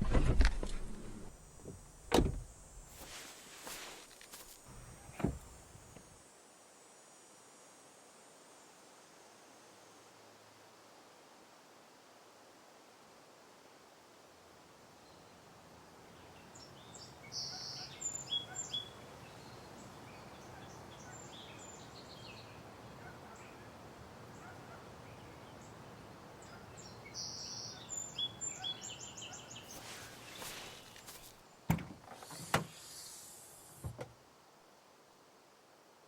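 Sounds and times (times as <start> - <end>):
faint outdoor hiss: 0.0 - 36.0
songbird twittering: 16.6 - 22.6, 26.4 - 31.0.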